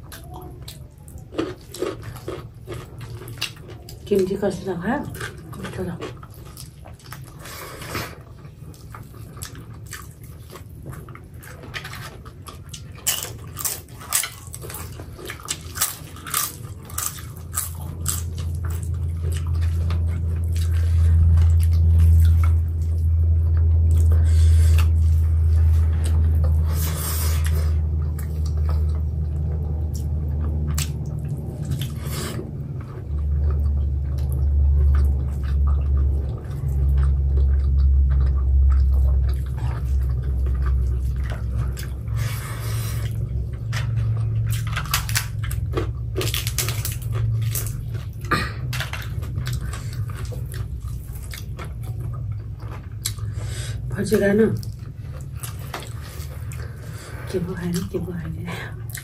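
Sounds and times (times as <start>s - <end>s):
chewing with crunches and clicks: 0.0s - 59.0s
low rumble: 14.3s - 59.0s.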